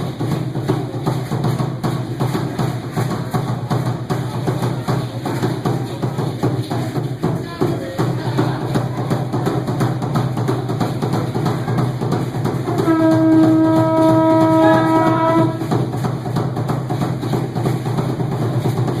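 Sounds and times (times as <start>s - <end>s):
horn-like blast: 12.8s - 15.7s.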